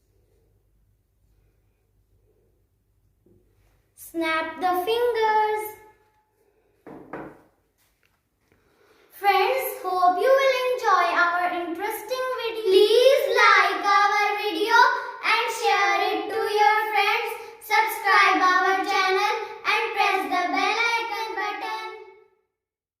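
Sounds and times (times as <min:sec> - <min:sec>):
child singing: 0:09.2 - 0:22.1.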